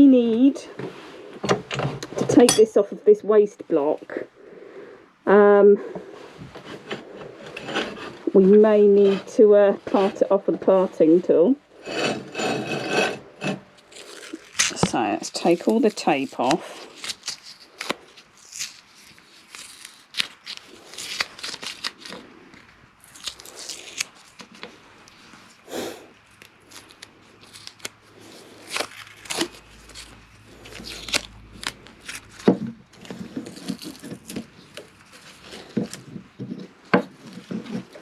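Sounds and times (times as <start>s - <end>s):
tape peeling off wood: 12.1s - 38.0s.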